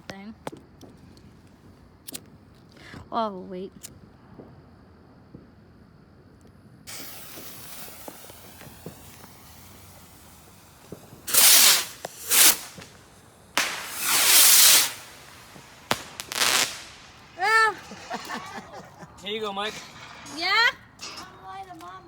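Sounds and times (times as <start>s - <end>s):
firework fuse hissing: 6.8s - 21.3s
firework hissing bursts: 6.9s - 21.0s
firework cracks: 6.9s - 21.2s.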